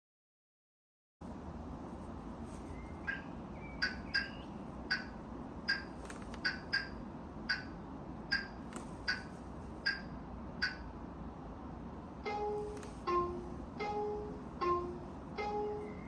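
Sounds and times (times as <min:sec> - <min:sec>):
steady low hum: 0:01.2 - 0:16.0
turn signal chirps: 0:02.7 - 0:07.7, 0:08.3 - 0:10.8.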